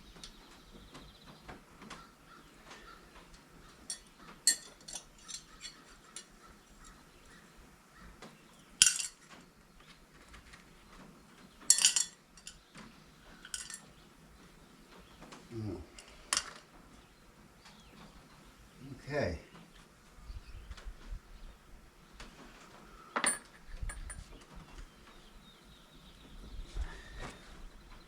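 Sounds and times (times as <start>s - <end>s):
metal hand tools clinking: 3.8s - 7.0s, 8.8s - 9.3s, 11.7s - 12.6s, 13.4s - 13.8s, 16.0s - 16.6s.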